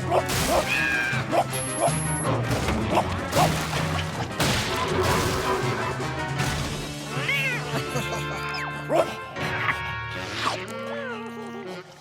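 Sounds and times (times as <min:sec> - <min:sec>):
background music: 0:00.0 - 0:12.0
cartoon crashing and smashing: 0:00.2 - 0:01.3, 0:02.5 - 0:07.0.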